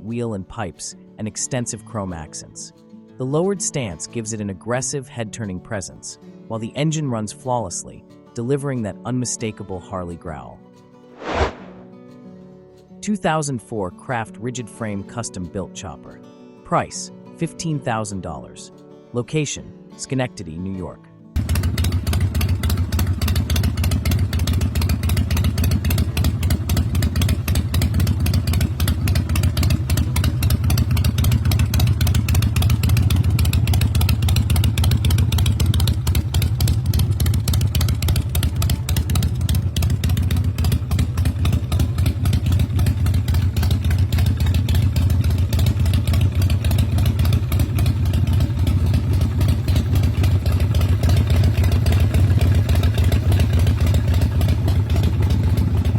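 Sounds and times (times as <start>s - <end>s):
motorcycle engine running: 21.4s - 55.9s.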